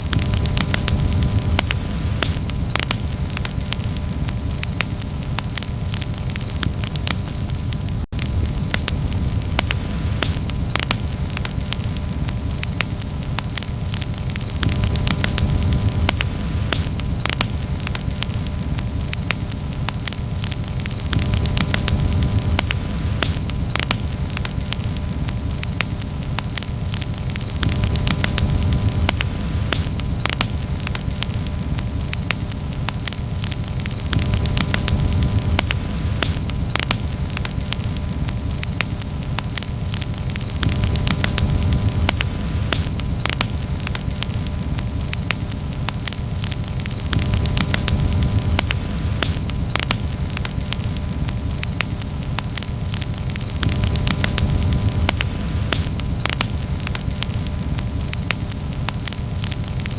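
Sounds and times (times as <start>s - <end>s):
campfire crackling and popping: 0.0s - 59.9s
steady low rumble: 0.0s - 59.9s.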